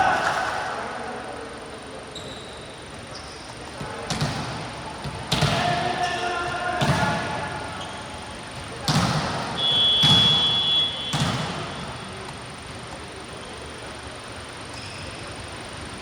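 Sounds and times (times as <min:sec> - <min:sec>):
volleyball hits: 0:03.6 - 0:13.2
referee's whistle: 0:09.5 - 0:12.0.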